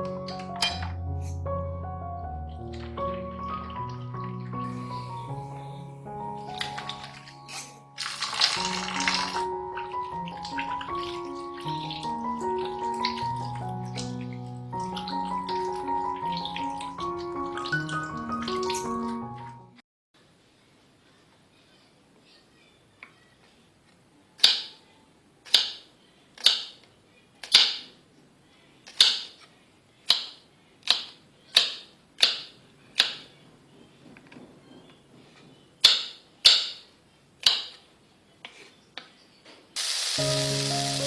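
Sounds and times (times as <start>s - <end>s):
food sizzling in hot oil: 6.9s - 9.5s, 39.8s - 41.0s.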